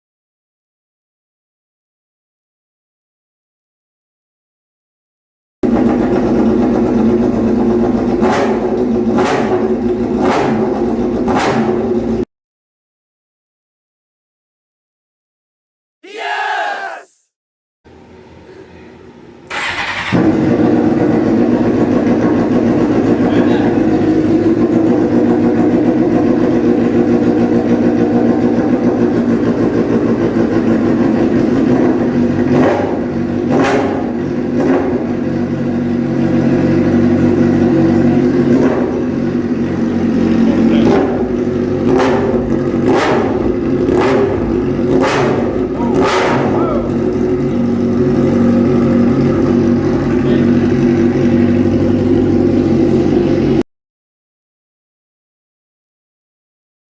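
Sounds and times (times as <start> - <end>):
engine throttle revs: 5.6 - 12.2, 17.9 - 53.6
motorcycle engine idling: 5.6 - 12.2, 19.5 - 53.6.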